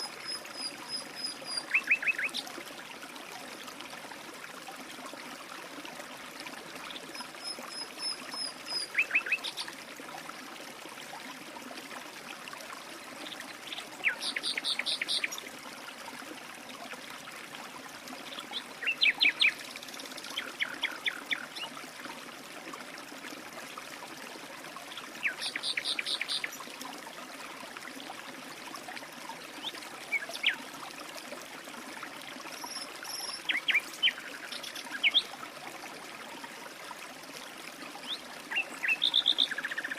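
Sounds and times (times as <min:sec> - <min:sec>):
stream trickling: 0:00.0 - 0:39.9
songbirds calling: 0:13.6 - 0:15.4, 0:38.0 - 0:39.9.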